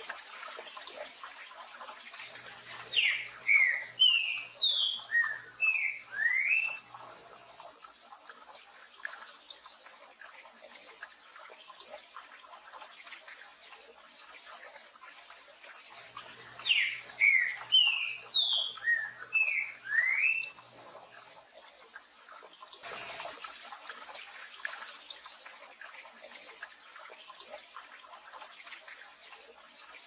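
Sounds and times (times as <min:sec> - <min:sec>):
bird singing whistled notes: 0:03.0 - 0:06.8, 0:16.6 - 0:20.6.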